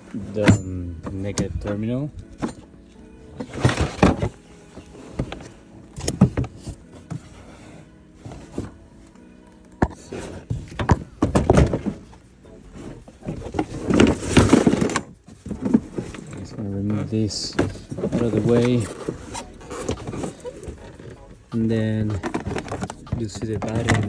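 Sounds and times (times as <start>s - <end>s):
background music: 0.0s - 24.0s
car trim panels thunking and rattling: 9.8s - 21.6s.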